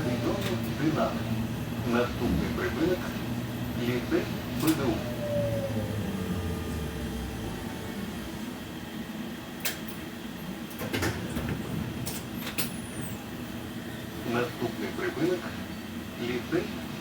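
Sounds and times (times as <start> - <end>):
tram hum and rumble: 0.0 - 17.0
falling whine: 2.4 - 8.8.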